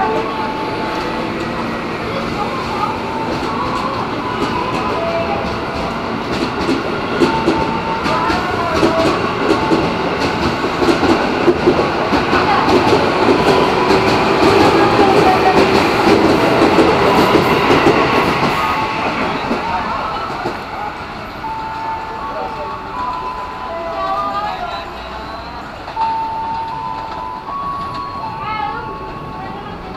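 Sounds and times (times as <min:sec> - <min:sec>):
electric train rumbling: 0:00.0 - 0:29.9
shifting train whine: 0:00.0 - 0:29.9.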